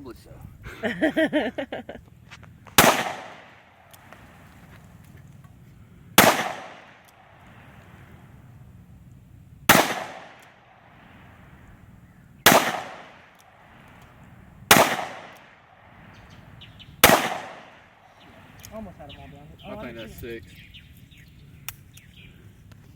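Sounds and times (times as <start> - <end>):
gunshots with echo: 2.8 - 3.6, 6.2 - 7.3, 9.7 - 11.0, 12.5 - 13.4, 14.7 - 15.6, 17.0 - 17.9.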